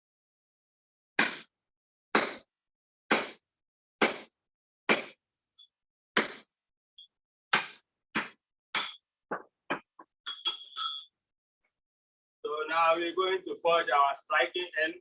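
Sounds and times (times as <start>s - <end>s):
hammer striking metal cutter: 1.2s - 1.5s, 2.2s - 2.5s, 3.1s - 3.4s, 4.9s - 5.2s, 6.2s - 6.5s, 7.5s - 9.0s.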